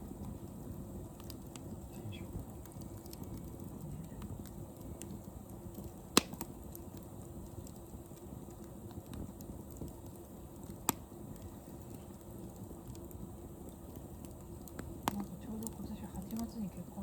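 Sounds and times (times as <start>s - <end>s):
wood fire crackling: 0.0s - 17.0s
sharp loud pops of fire: 5.8s - 6.8s.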